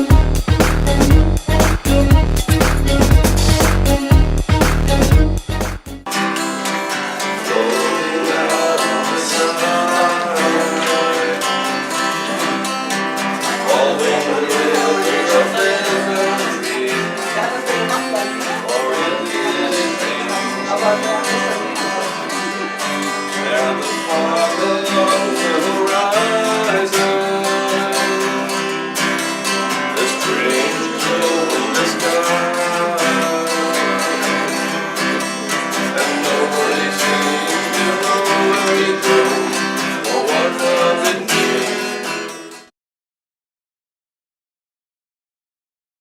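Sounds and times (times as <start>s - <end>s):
person singing: 0.0s - 5.5s, 6.1s - 42.6s
acoustic guitar strumming: 0.0s - 42.7s.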